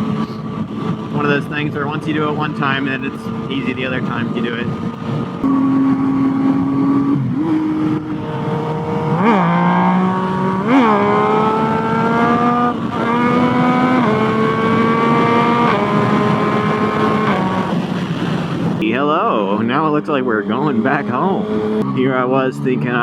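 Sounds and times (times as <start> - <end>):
motorcycle engine revving through gears: 0.0 - 18.8, 19.4 - 23.0.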